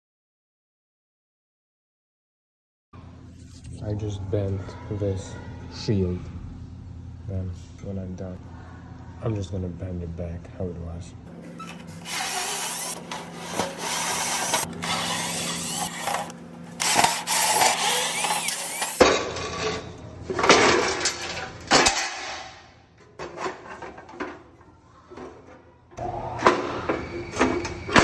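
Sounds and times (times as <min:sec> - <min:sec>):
sheet metal scraping and rubbing: 0:11.4 - 0:21.7.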